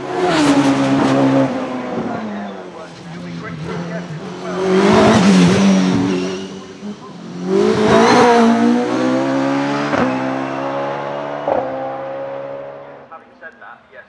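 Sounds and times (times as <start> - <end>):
race car engine revving hard: 0.0 - 13.1
race car gear upshifts: 3.0 - 9.0.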